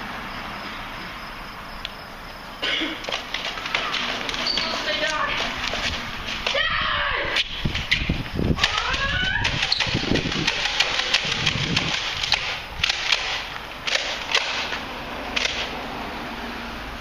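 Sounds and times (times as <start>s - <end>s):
shrill rising cries: 6.4s - 7.4s, 8.6s - 10.1s
sharp clicks and knocks: 7.4s - 14.8s, 15.4s - 15.7s.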